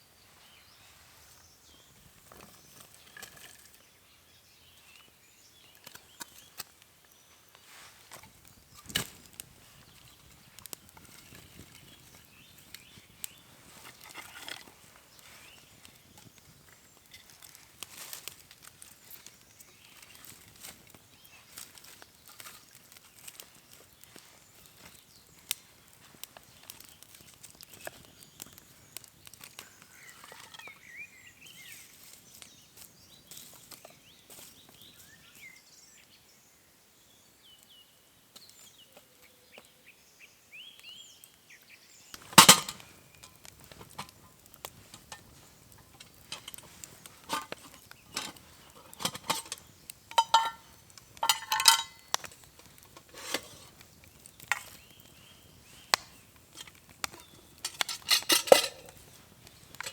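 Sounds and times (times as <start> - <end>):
small birds chirping: 0.0 - 59.9
metal cookware clinking: 42.3 - 44.1, 47.3 - 52.2, 56.6 - 59.0.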